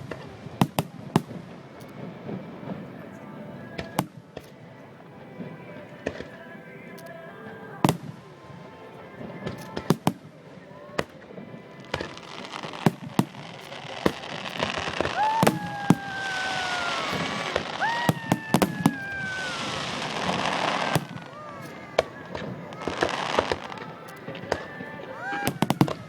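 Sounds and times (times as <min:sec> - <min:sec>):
fireworks bangs: 0:00.0 - 0:26.0
whistling firework shells: 0:00.0 - 0:26.0
rushing hiss: 0:09.4 - 0:26.0.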